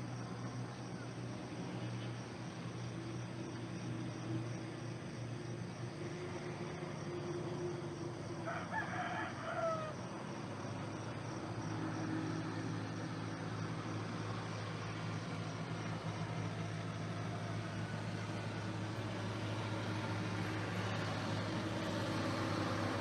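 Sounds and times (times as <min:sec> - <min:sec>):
distant rooster crowing: 0:08.2 - 0:10.1.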